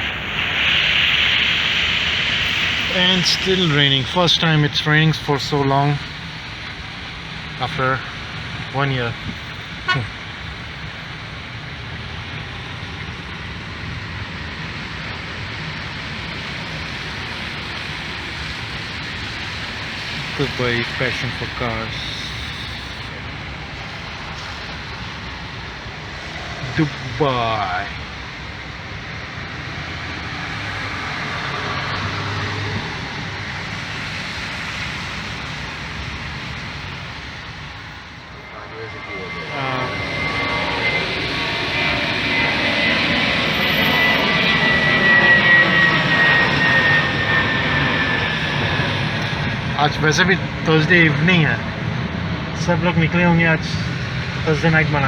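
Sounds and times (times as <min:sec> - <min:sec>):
rain hissing: 0:00.0 - 0:07.0
tyres hissing on wet road: 0:00.0 - 0:10.4, 0:14.0 - 0:37.8.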